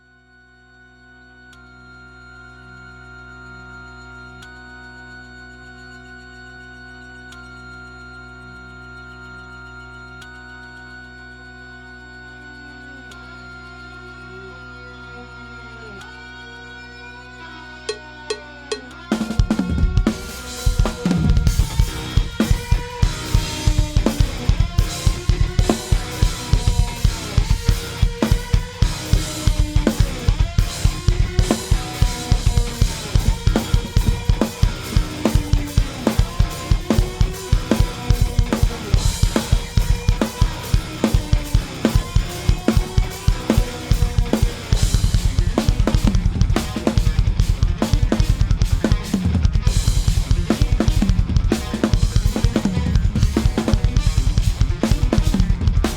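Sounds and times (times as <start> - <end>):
instrumental guitar lines: 14.4 - 55.9
fast heavy drum kit: 19.1 - 55.9.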